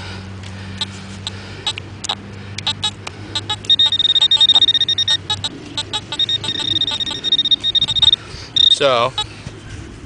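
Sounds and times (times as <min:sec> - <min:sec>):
pinpointer electronic beeping: 0:01.7 - 0:09.3.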